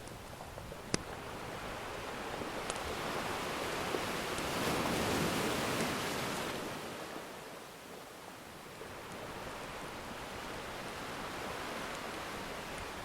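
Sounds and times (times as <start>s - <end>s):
ocean wave washing in: 1.1s - 7.5s
faint wood fire crackles: 2.3s - 4.7s, 10.4s - 13.0s.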